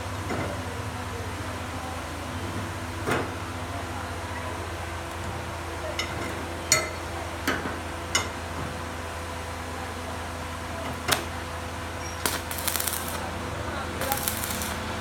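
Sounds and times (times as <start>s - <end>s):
steady electrical hum: 11.6s - 15.0s.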